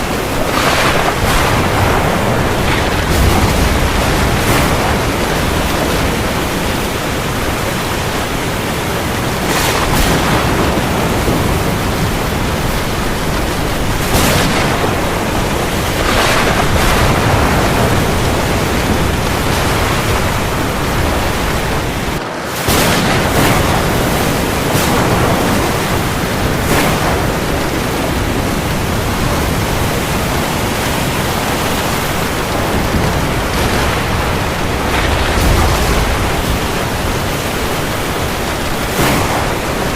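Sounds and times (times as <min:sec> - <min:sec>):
heavy rain on the sea: 0:00.0 - 0:39.9.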